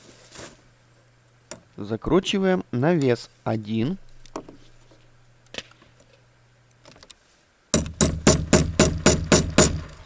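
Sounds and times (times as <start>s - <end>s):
hammer striking bolt into wood: 7.8s - 10.0s.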